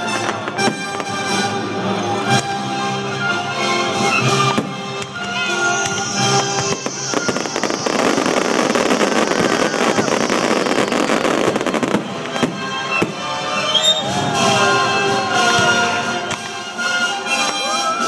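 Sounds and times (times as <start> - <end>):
music playing: 0.0 - 18.0
fireworks crackling: 3.8 - 18.0.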